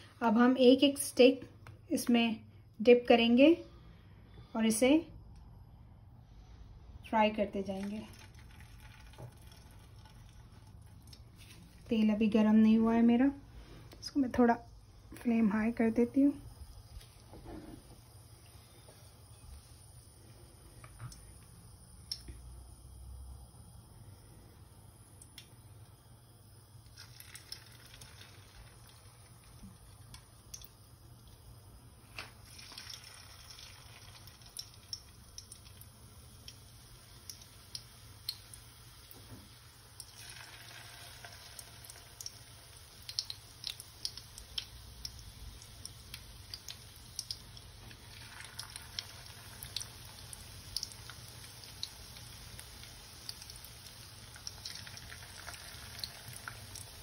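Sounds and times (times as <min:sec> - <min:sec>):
food sizzling in hot oil: 0:07.6 - 0:12.9, 0:24.9 - 0:57.0.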